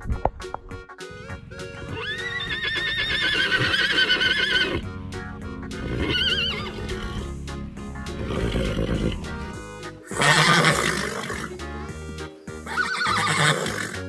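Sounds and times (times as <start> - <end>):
background music: 0.0 - 14.0
horse whinnying: 1.9 - 4.9, 5.8 - 7.3, 8.2 - 9.3, 10.1 - 11.6, 12.6 - 14.0.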